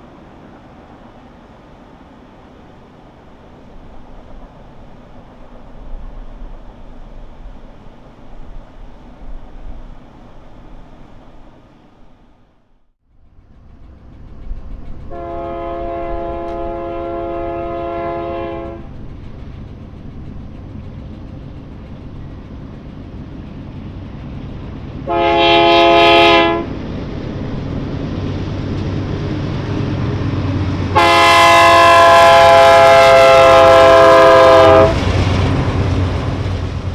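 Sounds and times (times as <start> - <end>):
train rumble: 0.0 - 36.9
locomotive horn blasts: 15.1 - 18.9, 25.0 - 26.7, 30.9 - 35.1.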